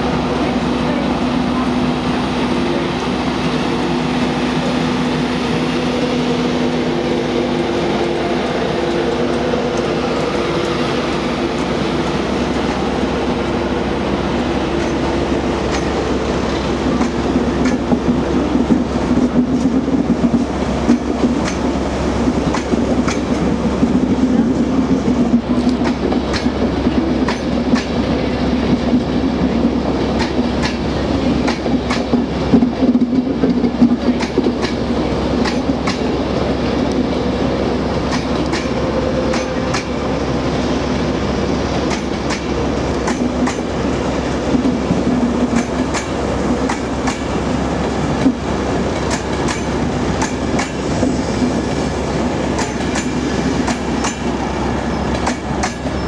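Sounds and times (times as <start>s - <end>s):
train rumble and hum: 0.0s - 56.0s
wheels clacking over rail joints: 44.4s - 51.6s, 52.4s - 56.0s.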